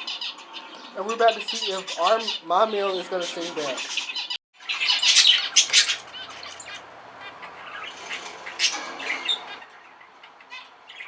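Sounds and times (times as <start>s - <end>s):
zebra finches singing and calling: 5.0s - 9.6s.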